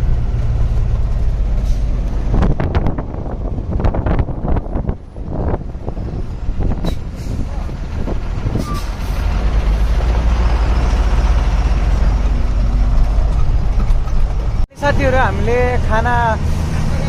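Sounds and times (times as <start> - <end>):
truck engine and road noise: 0.0 - 17.0
sharp knocks and rattles: 11.7 - 14.6.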